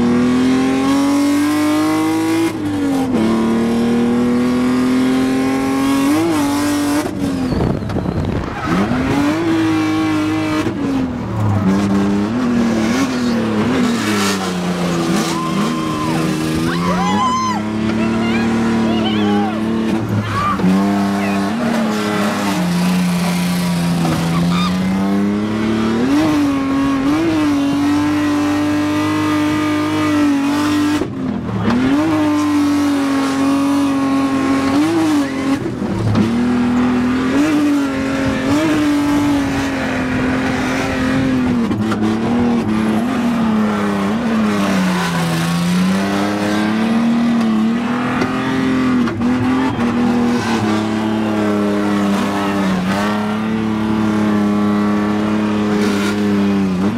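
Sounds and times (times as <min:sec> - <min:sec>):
car engine at high revs: 0:00.0 - 0:56.9
tyre squeal: 0:07.0 - 0:09.5, 0:14.9 - 0:25.0.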